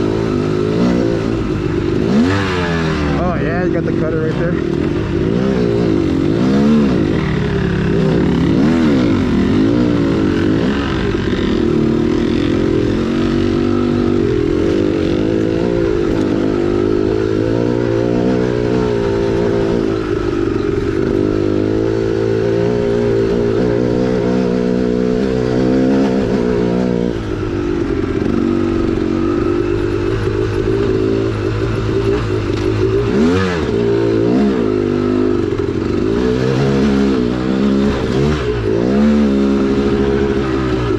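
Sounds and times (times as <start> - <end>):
dirt bike engine revving: 0.0 - 40.9
clatter: 25.1 - 40.9.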